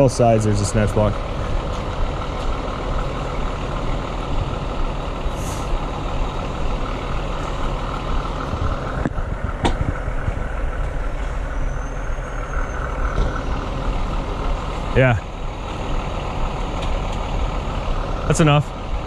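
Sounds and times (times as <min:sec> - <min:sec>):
truck diesel engine running: 0:00.0 - 0:19.0
air hiss: 0:05.3 - 0:05.8.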